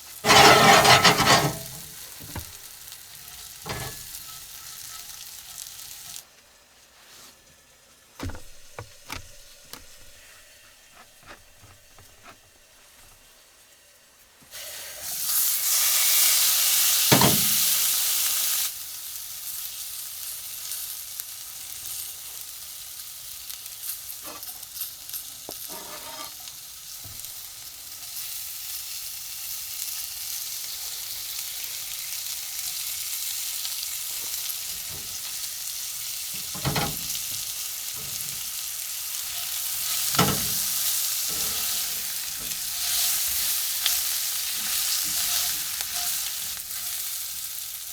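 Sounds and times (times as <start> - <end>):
steak sizzling in a pan: 0.0 - 6.3, 14.5 - 47.9
clicks and knocks: 8.2 - 10.2.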